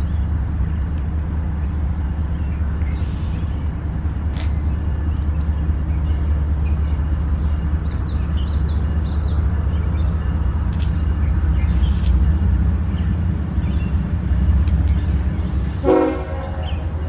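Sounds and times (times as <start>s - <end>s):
freight train rumbling: 0.0s - 17.0s
bird chirping: 4.4s - 15.6s.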